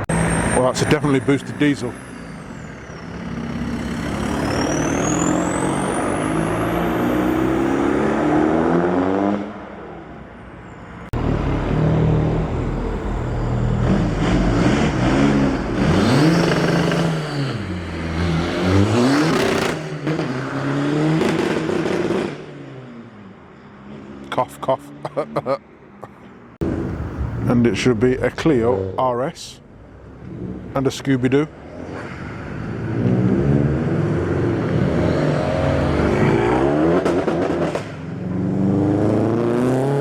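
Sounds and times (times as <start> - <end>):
diesel engine driving off: 0.0 - 8.5, 11.1 - 19.8
petrol engine revving: 0.0 - 9.4, 11.1 - 22.5
high turbo whine: 11.0 - 20.5, 26.6 - 30.7.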